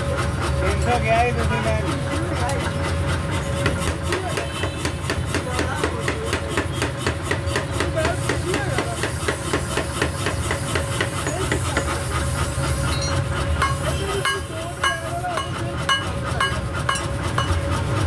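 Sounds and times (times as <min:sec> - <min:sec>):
hammering on hot metal: 0:03.6 - 0:18.0.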